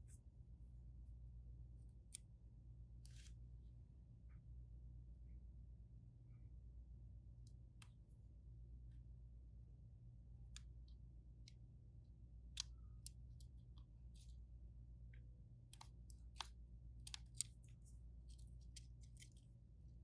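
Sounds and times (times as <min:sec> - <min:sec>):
low steady hum: 0:00.0 - 0:20.0
small tools clicking on phone parts: 0:15.6 - 0:19.5.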